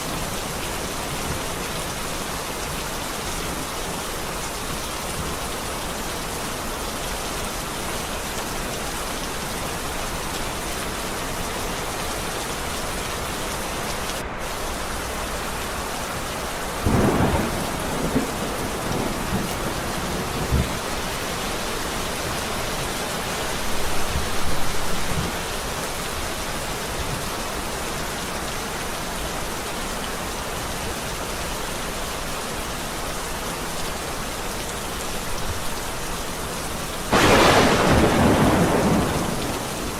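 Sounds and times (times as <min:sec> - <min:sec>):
steady rain falling: 0:00.0 - 0:39.9
thunder rumbling: 0:14.2 - 0:25.6, 0:37.1 - 0:39.9.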